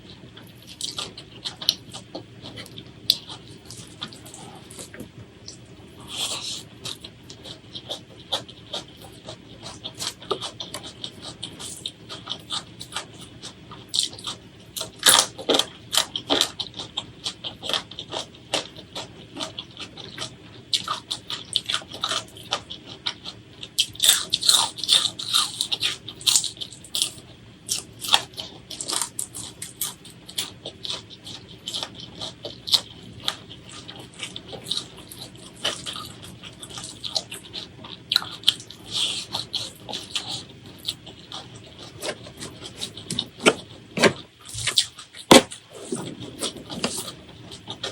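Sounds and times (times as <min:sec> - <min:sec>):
crunchy bites and wet chewing: 0:00.1 - 0:47.9.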